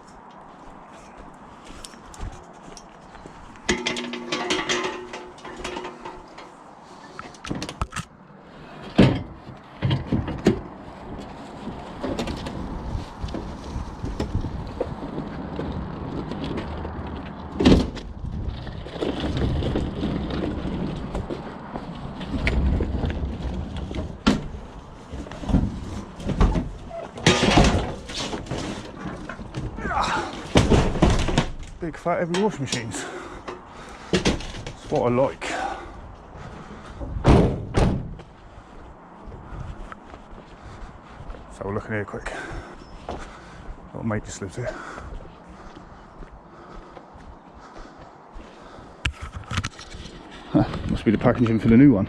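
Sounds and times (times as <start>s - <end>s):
knocks and bangs of heavy machine: 3.7s - 6.6s, 8.9s - 10.8s, 25.2s - 31.7s, 37.0s - 38.2s
sharp thuds: 37.0s - 38.3s.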